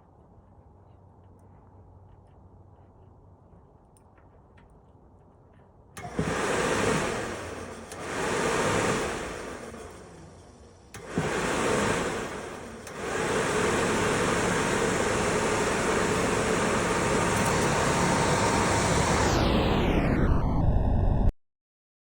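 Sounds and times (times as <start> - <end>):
motor click: 6.0 - 14.4, 16.6 - 19.4
fan motor rushing air: 6.0 - 21.3.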